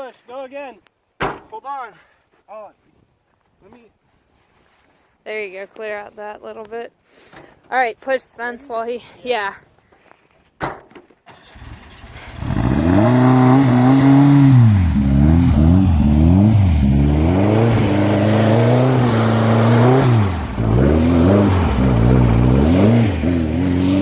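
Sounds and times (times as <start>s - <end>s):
car engine revving: 11.4s - 24.0s.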